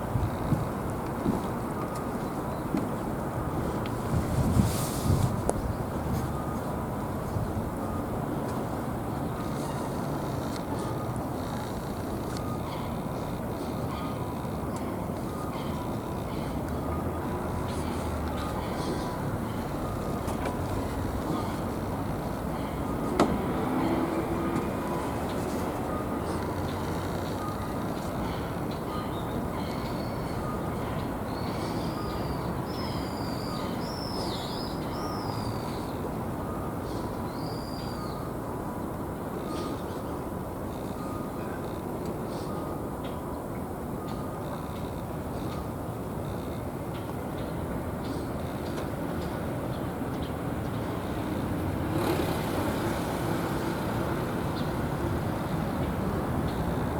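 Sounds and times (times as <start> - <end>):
road traffic rumble: 0.0 - 56.9
vehicle passing: 50.4 - 56.9.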